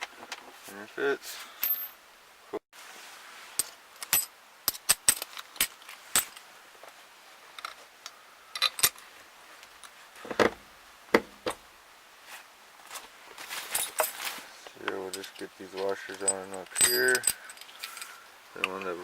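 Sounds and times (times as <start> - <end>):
bolts and washers clinking: 3.6 - 6.5, 8.6 - 10.6, 13.7 - 19.0.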